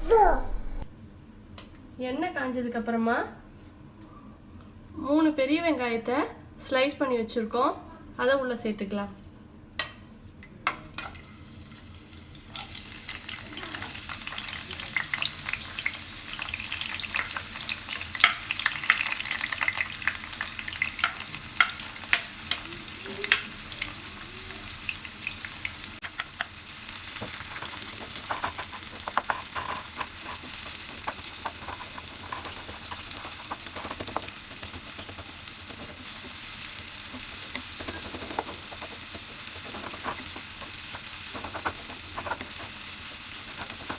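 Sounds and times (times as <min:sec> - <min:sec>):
onions sizzling in hot oil: 0:10.9 - 0:43.9
spoon scraping a pan: 0:26.0 - 0:43.9.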